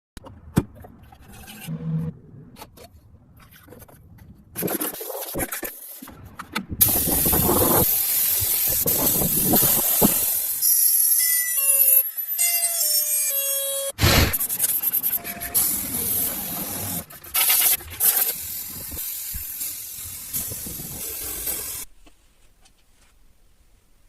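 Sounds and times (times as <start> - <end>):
loud steady hiss: 6.8 - 10.6.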